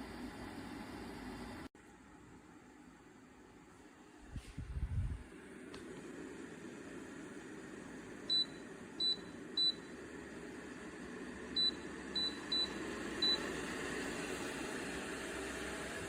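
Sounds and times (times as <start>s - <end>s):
fan airflow rushing: 4.1s - 8.2s
fan control beeps: 8.3s - 9.9s, 11.6s - 13.5s.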